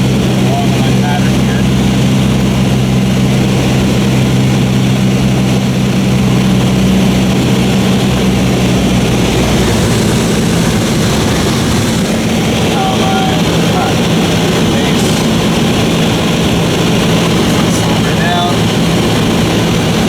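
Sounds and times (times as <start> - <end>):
propeller plane engine droning: 0.0 - 20.0
rushing wind noise: 0.0 - 20.0.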